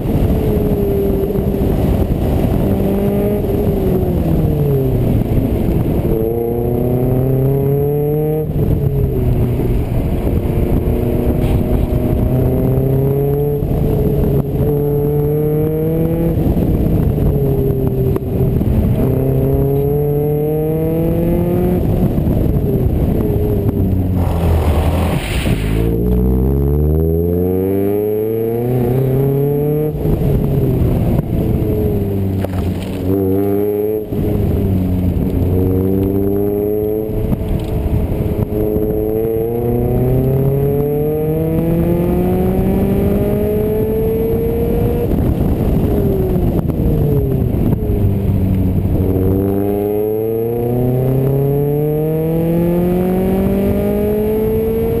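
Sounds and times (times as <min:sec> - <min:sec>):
car engine accelerating: 0:18.9 - 0:45.7.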